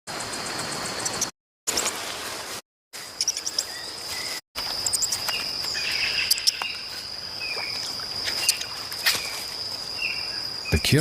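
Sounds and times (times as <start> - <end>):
bird chirps: 3.2 - 9.4
insect trilling: 4.6 - 11.0.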